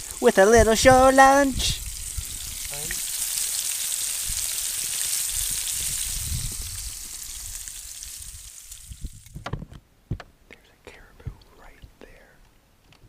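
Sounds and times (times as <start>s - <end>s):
food sizzling in a frying pan: 0.0s - 9.4s.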